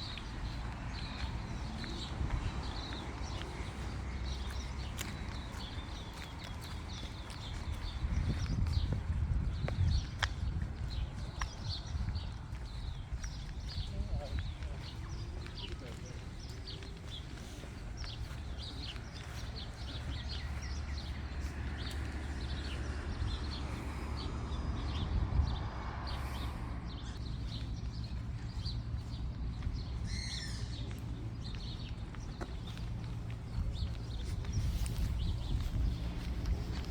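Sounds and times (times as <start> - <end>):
small birds chirping: 0.0 - 36.9
steady low rumble: 17.9 - 36.9.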